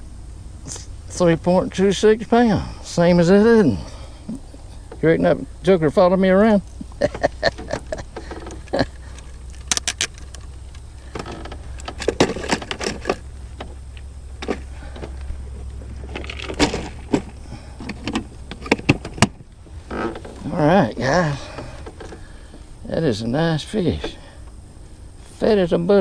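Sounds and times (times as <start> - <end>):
steady low rumble: 0.0 - 26.0
fishing gear rattling in boat: 7.0 - 13.7, 14.4 - 20.5.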